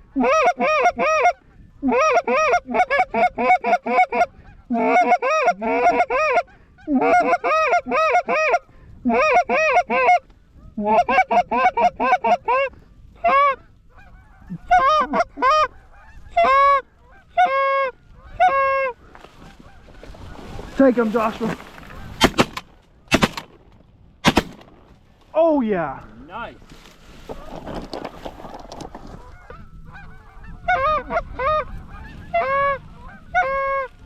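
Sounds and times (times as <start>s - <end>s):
goose honking: 0.1s - 22.5s, 29.1s - 34.0s.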